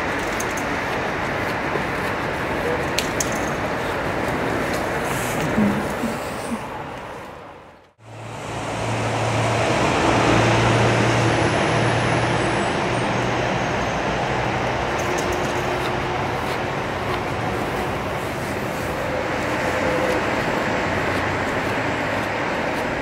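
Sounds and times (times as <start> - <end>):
low engine hum: 14.3 - 23.0.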